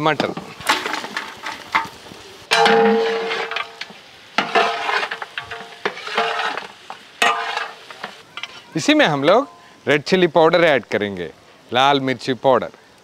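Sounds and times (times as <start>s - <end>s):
meat sizzling in oil: 0.0s - 10.9s
spoon clanking against pot: 2.5s - 6.6s.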